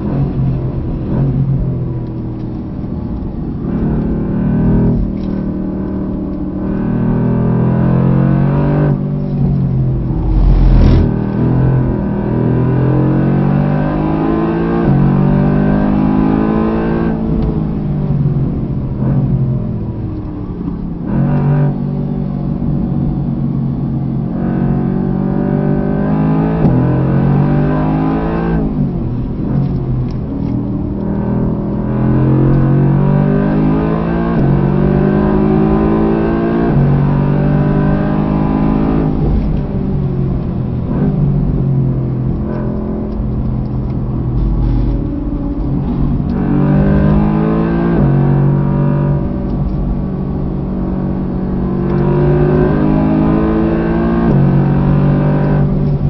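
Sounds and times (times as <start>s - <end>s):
car engine accelerating hard: 0.0s - 56.0s
tyre and road noise: 8.9s - 12.9s, 38.6s - 52.8s.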